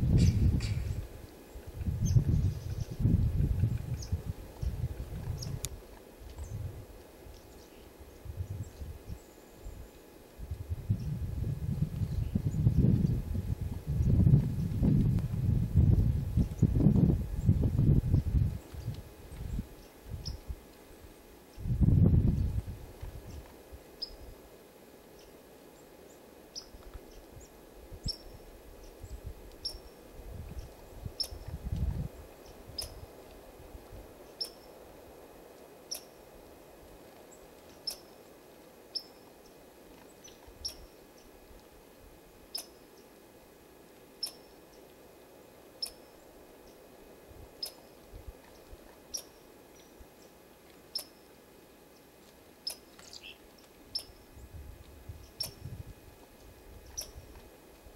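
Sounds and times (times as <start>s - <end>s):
small animal chirping: 42.5s - 42.8s, 44.2s - 44.6s, 45.8s - 46.2s, 47.6s - 47.9s, 49.1s - 49.4s, 50.9s - 51.2s, 52.6s - 54.3s, 55.3s - 55.6s, 56.9s - 57.2s.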